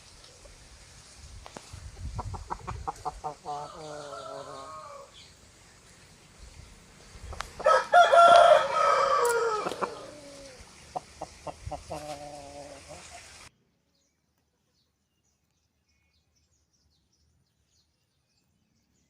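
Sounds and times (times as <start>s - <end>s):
hens clucking: 2.0s - 5.0s, 7.3s - 13.5s
rooster crowing: 3.5s - 5.2s, 7.6s - 10.6s.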